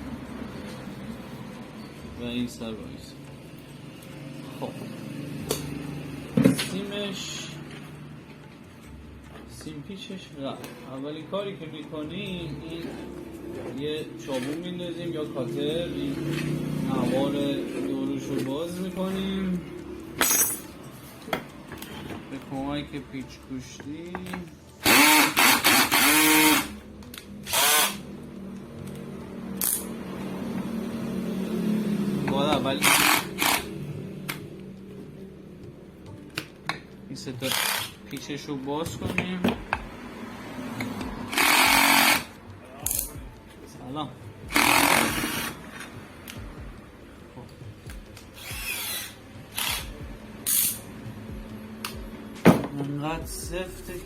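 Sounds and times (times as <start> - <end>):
power screwdriver motor whirring: 24.8 - 26.8, 27.4 - 28.0, 32.8 - 33.8, 37.4 - 38.1, 41.3 - 42.4, 44.5 - 45.9, 48.3 - 50.9.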